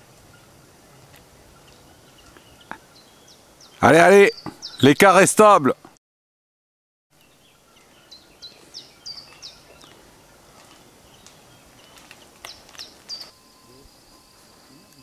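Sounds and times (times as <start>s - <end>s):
faint outdoor background: 0.0s - 6.0s, 7.1s - 15.0s
bird chirping: 0.3s - 5.3s, 7.2s - 15.0s
high insect trill: 7.3s - 15.0s.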